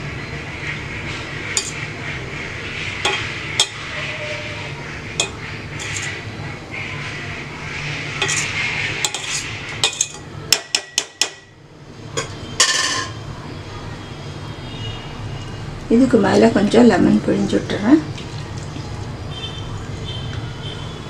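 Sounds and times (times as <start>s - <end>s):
spoon scraping a pot: 1.6s - 1.9s, 3.0s - 6.2s, 8.0s - 11.3s
sharp spoon taps: 5.2s - 6.1s.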